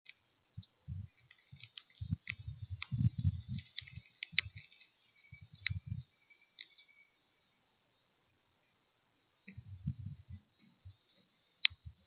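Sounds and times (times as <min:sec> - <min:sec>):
birds pecking and knocking: 0:01.0 - 0:06.9.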